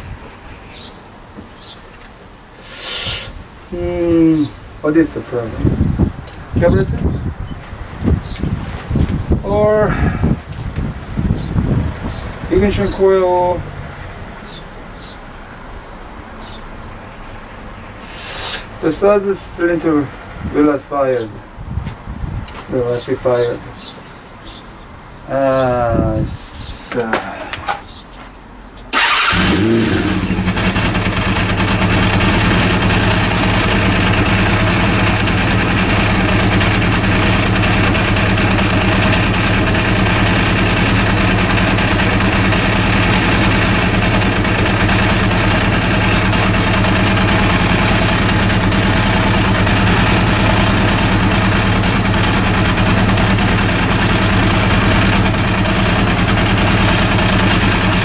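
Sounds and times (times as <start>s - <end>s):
motorcycle engine starting and idling: 28.9s - 58.0s.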